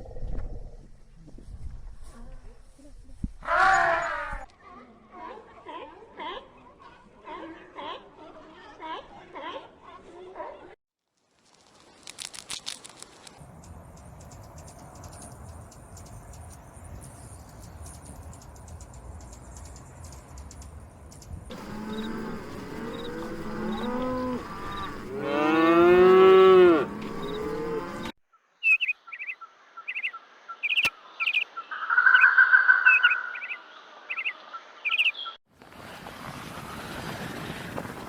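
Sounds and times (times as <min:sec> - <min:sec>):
bird chirping: 0:13.5 - 0:25.8, 0:26.9 - 0:35.4
cow mooing: 0:21.5 - 0:28.1.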